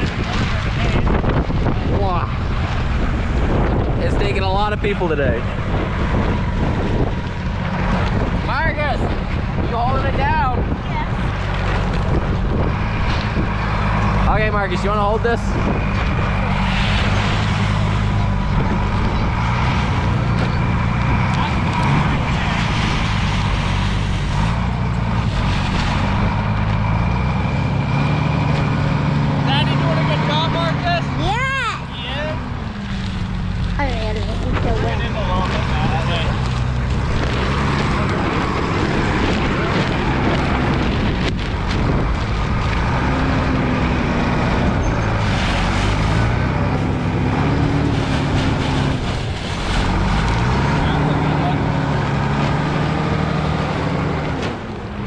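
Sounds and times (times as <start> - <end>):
heavy wind noise: 0.0 - 55.0
vehicle engine running: 0.0 - 55.0.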